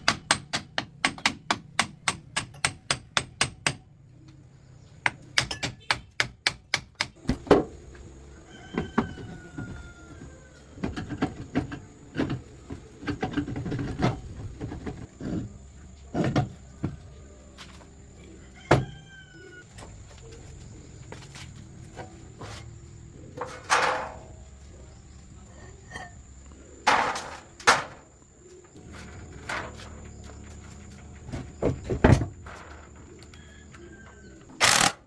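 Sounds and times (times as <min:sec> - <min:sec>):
hammer strikes: 0:00.0 - 0:03.8
knocks and clatter on metal: 0:26.8 - 0:28.1, 0:28.9 - 0:33.0.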